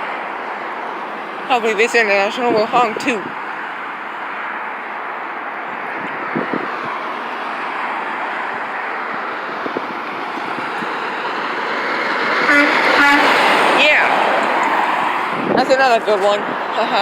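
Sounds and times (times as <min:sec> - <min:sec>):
truck engine and tyre noise: 0:00.0 - 0:17.0.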